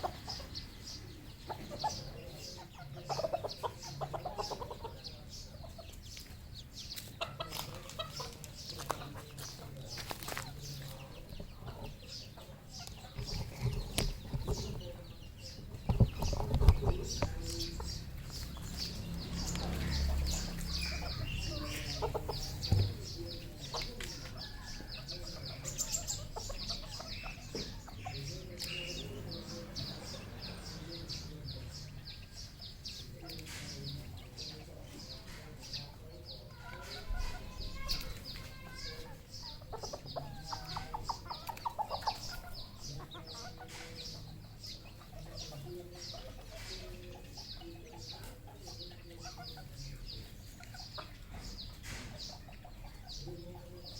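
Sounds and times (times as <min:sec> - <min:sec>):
junglefowl clucking: 0:20.4 - 0:28.2.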